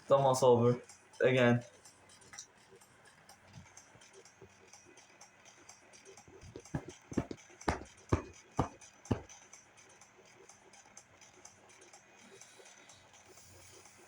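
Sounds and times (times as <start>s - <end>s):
sharp thumps: 6.3s - 9.3s.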